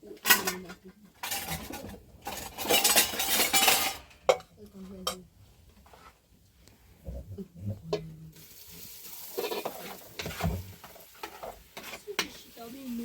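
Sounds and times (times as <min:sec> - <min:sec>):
dishes and cutlery clattering: 0:00.0 - 0:05.2, 0:09.2 - 0:12.5.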